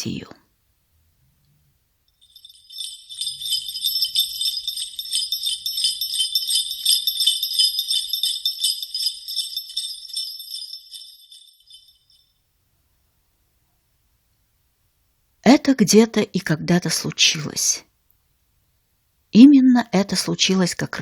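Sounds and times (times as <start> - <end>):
jingle bells shaken: 2.2 - 12.3.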